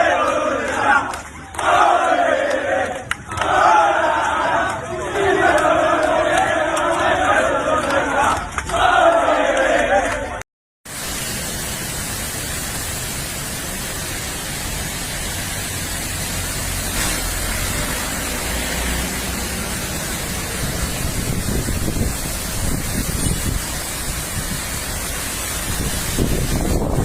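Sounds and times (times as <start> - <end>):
group shouting and cheering: 0.0 - 10.4
heavy rain falling: 10.9 - 27.0.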